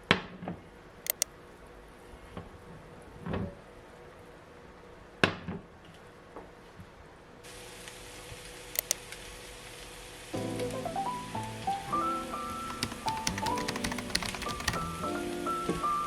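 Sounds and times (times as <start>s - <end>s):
quick clicks: 1.0s - 1.3s, 8.8s - 9.0s, 12.6s - 15.0s
steady hiss: 7.4s - 15.5s.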